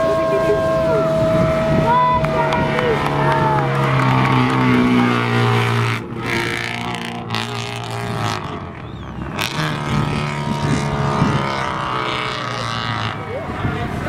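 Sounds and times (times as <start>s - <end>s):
rally car engine running hard: 0.0s - 14.0s.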